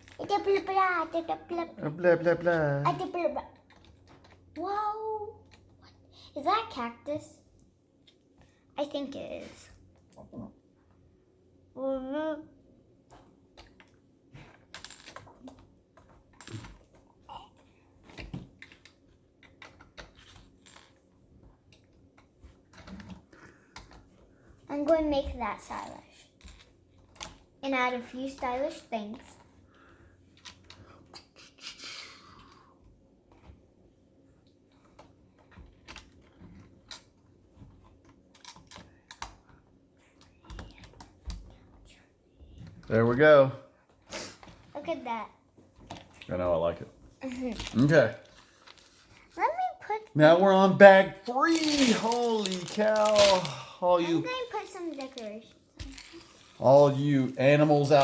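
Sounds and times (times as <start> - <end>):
plastic bricks clicking and rattling: 51.4 - 53.5.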